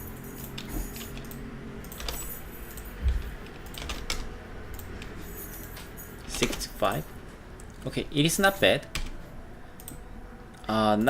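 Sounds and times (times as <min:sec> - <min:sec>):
low steady hum: 0:00.0 - 0:11.0
computer keys clicking: 0:00.2 - 0:07.0, 0:09.8 - 0:11.0.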